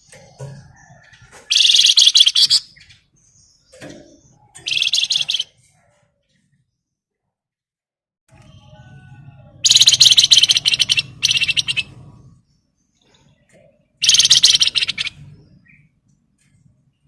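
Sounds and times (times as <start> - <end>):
songbird rattling trills: 0.0 - 2.9, 4.6 - 5.5, 9.6 - 12.0, 14.0 - 15.4
songbird soft calls: 9.6 - 11.9, 14.0 - 15.8.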